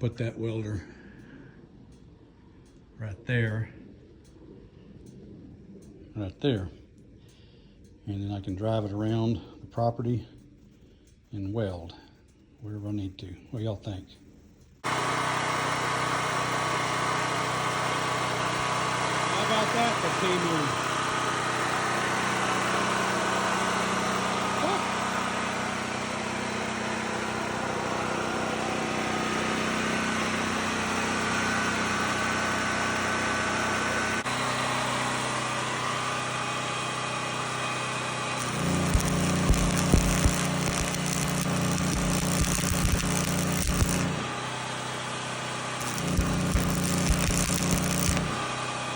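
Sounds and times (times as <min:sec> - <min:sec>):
small gas engine running: 0:14.8 - 0:48.9
irregular cracks: 0:38.4 - 0:44.3, 0:45.8 - 0:48.4.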